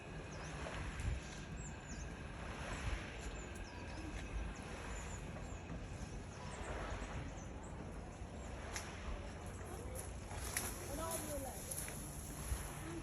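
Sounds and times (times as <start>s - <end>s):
steady low rumble: 0.0s - 13.0s
small birds chirping: 0.1s - 12.2s.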